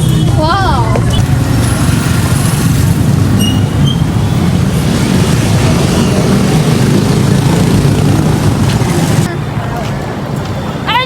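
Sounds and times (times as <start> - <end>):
moving vehicle rumble: 0.0 - 11.0
high squeal: 3.4 - 4.3.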